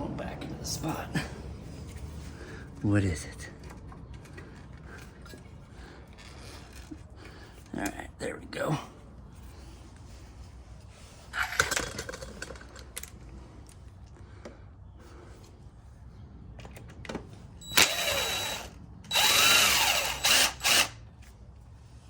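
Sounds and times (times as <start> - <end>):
parts clattering: 11.3 - 13.8
power drill driving bolts: 17.6 - 21.0.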